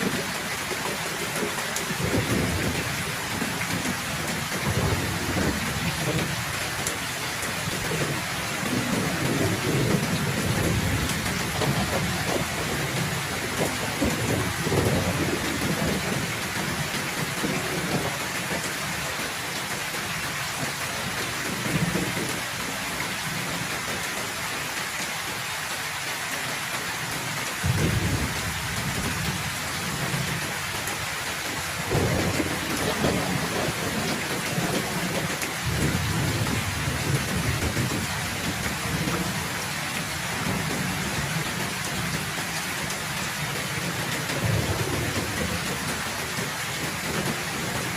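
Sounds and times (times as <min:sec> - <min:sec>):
heavy rain falling: 0:00.0 - 0:47.9
low thunder rumbling: 0:01.9 - 0:18.5, 0:27.6 - 0:46.1.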